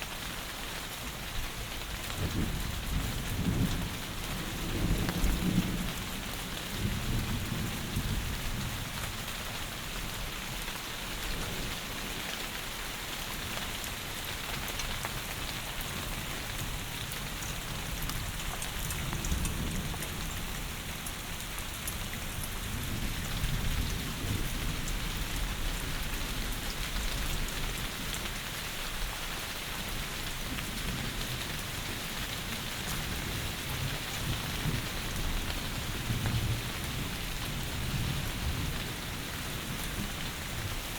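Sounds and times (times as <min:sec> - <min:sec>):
heavy rain falling: 0:00.0 - 0:40.9
low thunder rumbling: 0:16.4 - 0:26.4.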